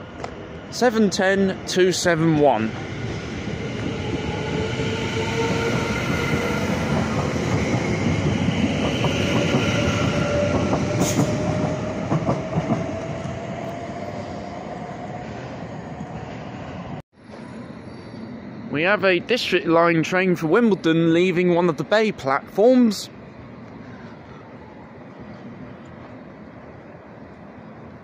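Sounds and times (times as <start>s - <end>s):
train wheels rumbling on rail: 0.0s - 18.3s.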